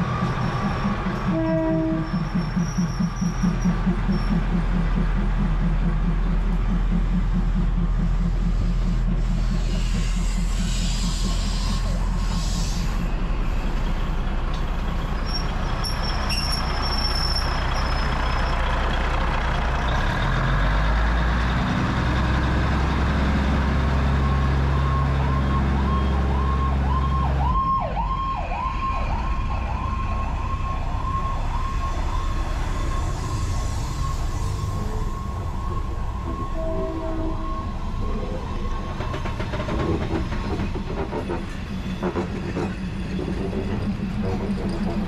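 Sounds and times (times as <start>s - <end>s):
train cars rolling: 0.0s - 26.9s, 29.1s - 45.0s
diesel engine running low: 0.0s - 45.0s
wavering high squeal: 15.2s - 18.2s, 28.9s - 39.3s.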